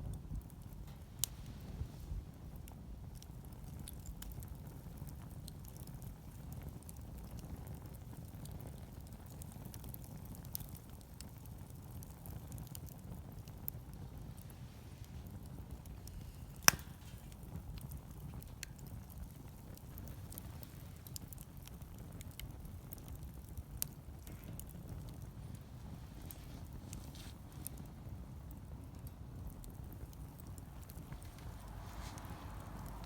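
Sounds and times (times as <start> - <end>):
wood fire crackling: 0.0 - 33.0
steady low rumble: 13.4 - 33.0
loud sharp crack: 16.2 - 17.9
low rumble: 30.5 - 33.0.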